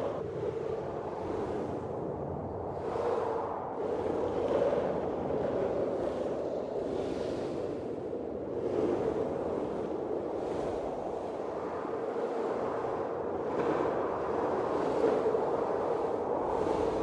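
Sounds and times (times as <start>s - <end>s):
blizzard wind gusts: 0.0s - 17.0s.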